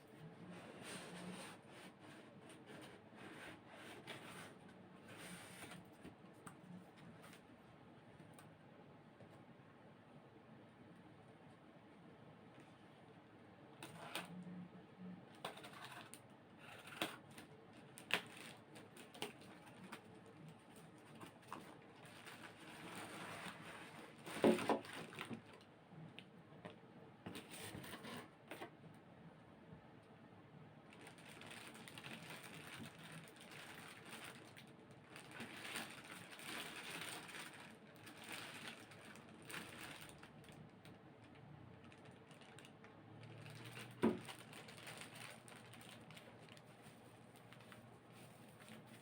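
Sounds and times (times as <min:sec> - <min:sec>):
packaging rustling and scraping: 0:00.1 - 0:07.5, 0:15.4 - 0:25.7, 0:27.3 - 0:28.7, 0:30.9 - 0:40.6, 0:41.8 - 0:49.0.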